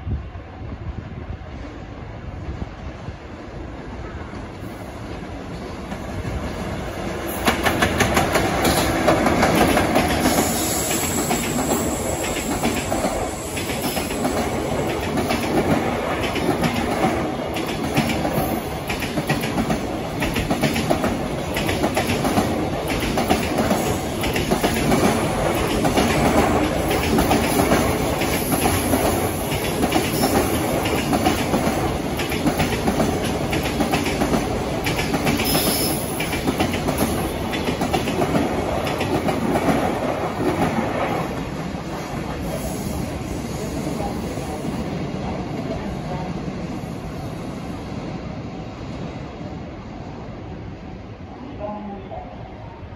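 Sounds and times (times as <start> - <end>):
train wheels clattering on rails: 4.2 - 45.8.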